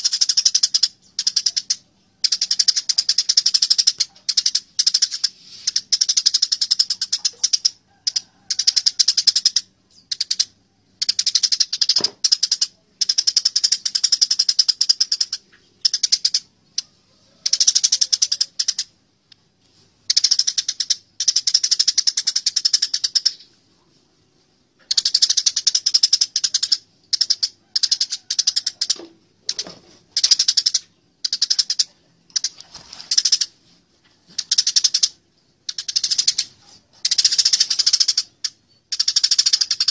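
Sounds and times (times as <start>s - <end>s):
sparrows chirping harshly: 24.2s - 33.5s.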